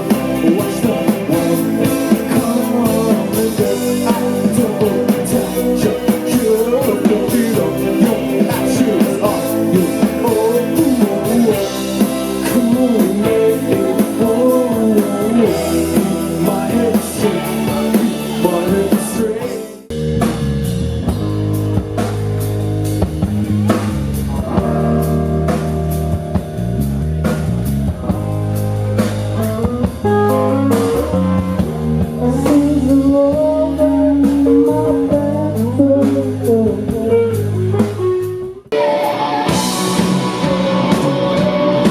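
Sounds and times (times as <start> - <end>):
person singing: 0.0 - 19.9, 32.2 - 41.9
drum kit: 0.0 - 41.9
electric guitar: 0.0 - 41.9
heavy bass line: 0.0 - 41.9.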